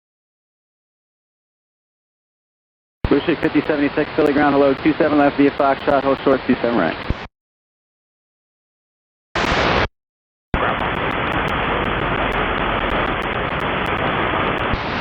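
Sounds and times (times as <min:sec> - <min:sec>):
radio static hiss: 0:03.0 - 0:07.3, 0:09.4 - 0:09.9, 0:10.6 - 0:15.0.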